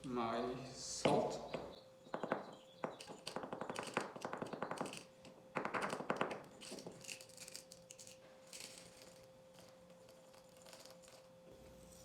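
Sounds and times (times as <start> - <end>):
grains settling ticks: 1.0 - 11.4
salt grains pouring into grinder: 5.9 - 12.0.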